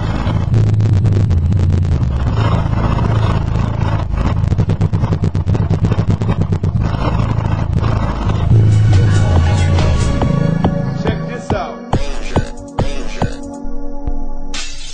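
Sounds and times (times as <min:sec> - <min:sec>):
rapid rattling buzz: 0:00.0 - 0:11.3
deep bass test tone: 0:00.0 - 0:14.5.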